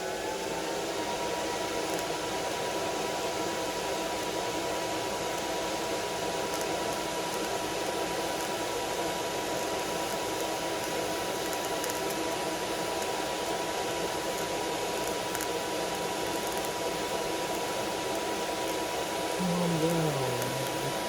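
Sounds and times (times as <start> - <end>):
faint high tone: 19.4 - 21.0.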